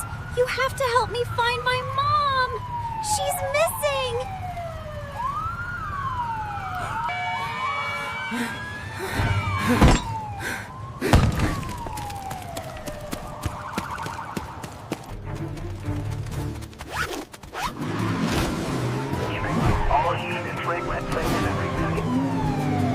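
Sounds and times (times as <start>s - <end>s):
police siren wailing: 0.0s - 15.2s, 18.8s - 22.9s.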